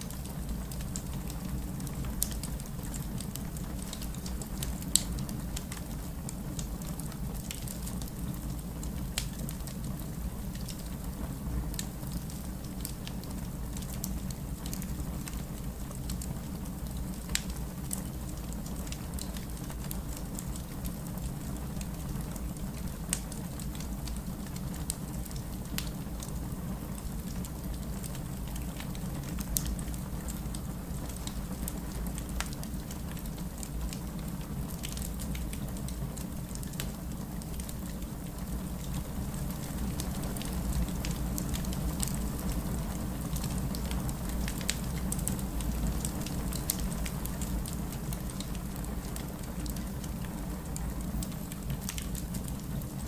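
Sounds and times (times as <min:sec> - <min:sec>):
fire low rumble: 0:00.0 - 0:53.0
fireplace fire pops and snaps: 0:00.1 - 0:06.8, 0:16.9 - 0:20.0, 0:38.7 - 0:52.4.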